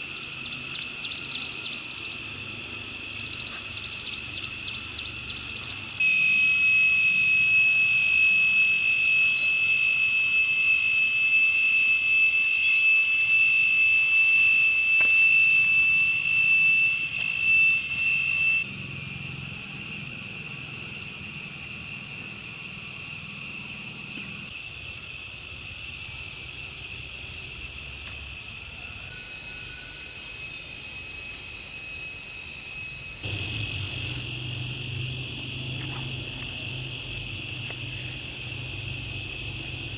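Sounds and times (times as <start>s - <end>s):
faint insect chorus: 0.0s - 39.9s
insects buzzing: 0.0s - 39.9s.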